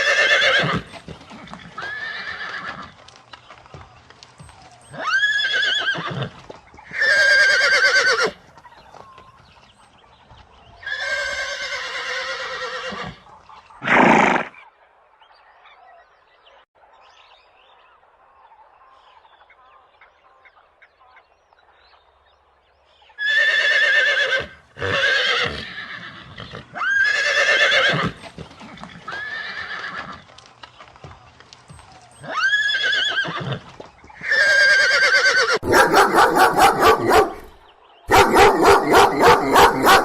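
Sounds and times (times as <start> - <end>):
horses whinnying: 0.0 - 3.0, 4.8 - 8.4, 10.8 - 14.6, 23.2 - 30.3, 32.1 - 40.0.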